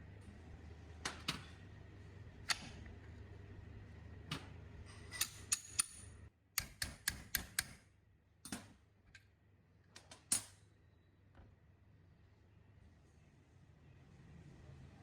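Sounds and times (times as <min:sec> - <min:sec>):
low background hum: 0:00.0 - 0:15.0
sharp clicks and taps: 0:06.6 - 0:07.8.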